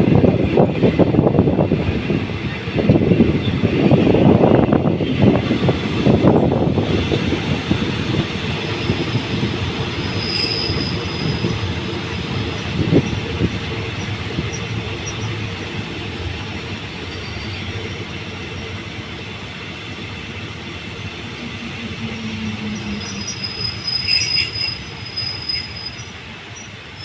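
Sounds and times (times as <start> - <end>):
train wheels rumbling on rails: 0.0 - 27.0
high-pitched brake squeal: 9.9 - 11.7, 17.0 - 17.7, 22.4 - 27.0.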